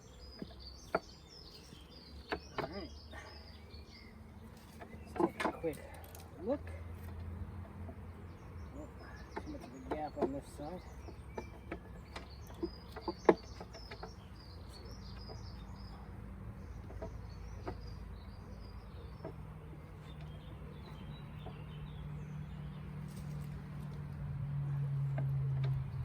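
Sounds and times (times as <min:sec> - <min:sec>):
small birds chirping: 0:00.0 - 0:26.0
knocks from handling hive: 0:00.3 - 0:03.0, 0:09.2 - 0:14.4, 0:16.8 - 0:18.0.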